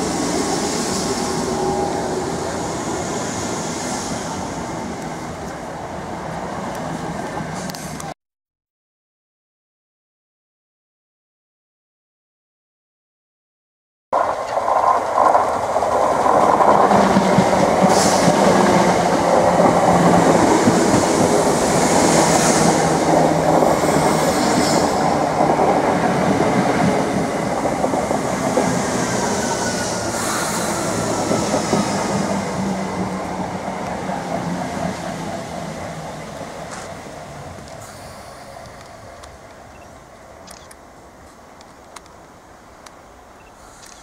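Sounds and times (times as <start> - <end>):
train wheels rumbling and clattering: 14.2 - 43.0.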